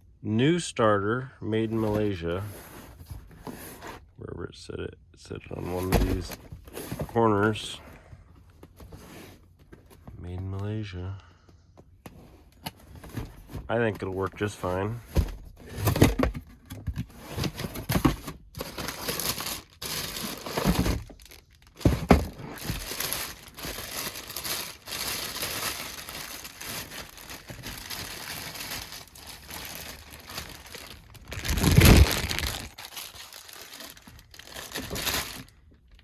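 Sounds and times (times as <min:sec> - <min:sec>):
packaging crinkling and tearing: 0:17.4 - 0:36.0.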